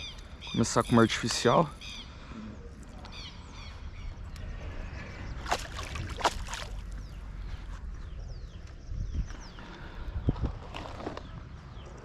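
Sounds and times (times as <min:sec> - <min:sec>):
low outdoor rumble: 0:01.6 - 0:12.0
water splashing: 0:05.4 - 0:07.0.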